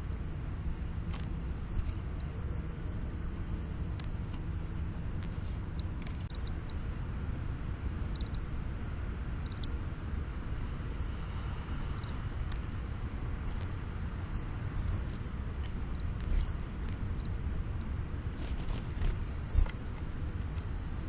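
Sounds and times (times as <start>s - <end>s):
steady low rumble: 0.0s - 21.0s
small birds chirping: 1.5s - 2.5s, 3.8s - 7.0s, 8.0s - 8.6s, 9.3s - 9.8s, 11.7s - 14.0s, 14.8s - 17.3s.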